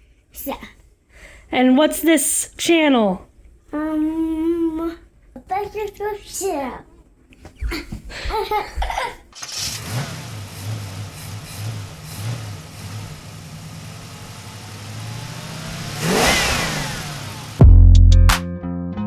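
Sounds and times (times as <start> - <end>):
large engine idling and revving: 9.4 - 17.7.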